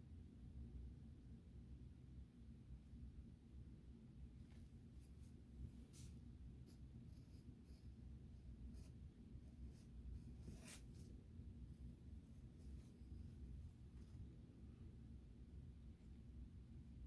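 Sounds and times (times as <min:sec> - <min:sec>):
low room rumble: 0:00.0 - 0:17.0
pencil strokes on paper: 0:04.5 - 0:14.4.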